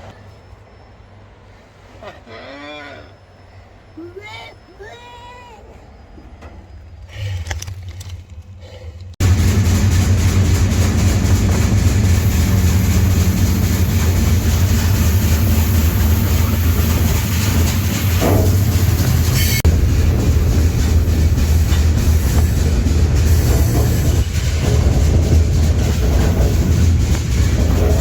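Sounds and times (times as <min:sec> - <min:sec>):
freight train rumble and rail noise: 0:00.0 - 0:02.2, 0:03.1 - 0:28.0.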